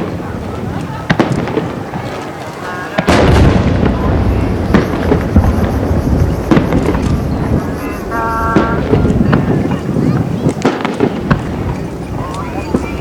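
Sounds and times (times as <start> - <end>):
fireworks bangs and crackles: 0.0 - 13.0
fireworks booming: 2.9 - 13.0
rolling rumble: 3.3 - 9.7.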